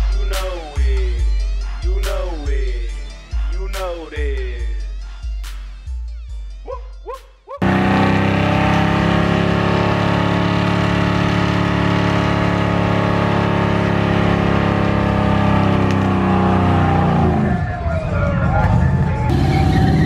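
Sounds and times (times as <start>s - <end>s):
car engine at high revs: 7.6s - 17.6s, 18.6s - 20.0s.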